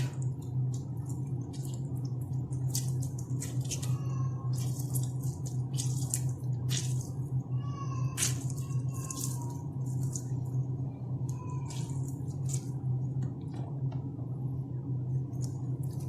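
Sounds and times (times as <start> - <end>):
lemon squeezing wet squishes: 0.0 - 13.5, 15.3 - 16.0
juice dripping: 0.0 - 14.0, 15.2 - 16.0
steady low hum: 0.0 - 16.0.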